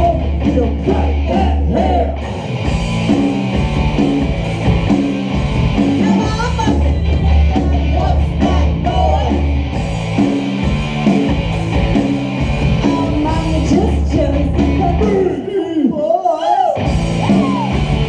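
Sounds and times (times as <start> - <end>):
electric guitar: 0.0 - 15.5, 16.7 - 18.0
bass guitar: 0.0 - 15.6, 16.8 - 18.0
drums: 0.0 - 18.0
person singing: 6.0 - 9.5, 12.7 - 17.8.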